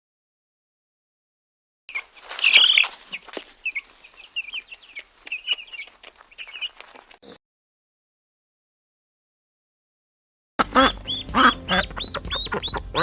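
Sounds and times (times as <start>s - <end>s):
chicks peeping: 1.9s - 6.8s, 10.6s - 13.0s
chickens calling: 1.9s - 7.1s, 10.6s - 13.0s.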